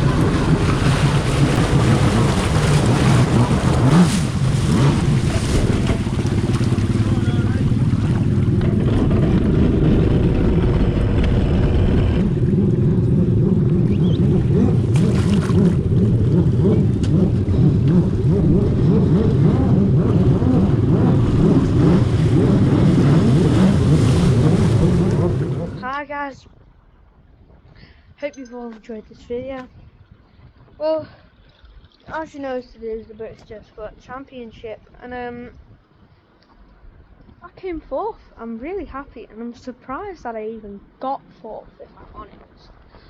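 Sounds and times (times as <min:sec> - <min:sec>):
jet ski engine running: 0:00.0 - 0:26.0
water noise: 0:00.0 - 0:43.0.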